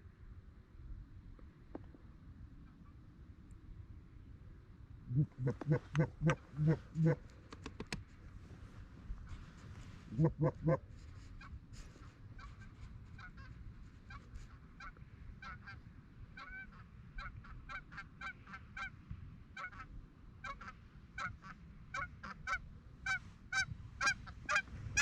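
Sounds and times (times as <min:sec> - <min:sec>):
wind rumble on microphone: 0:00.0 - 0:25.0
geese honking: 0:05.1 - 0:07.2, 0:10.1 - 0:10.8, 0:19.6 - 0:25.0.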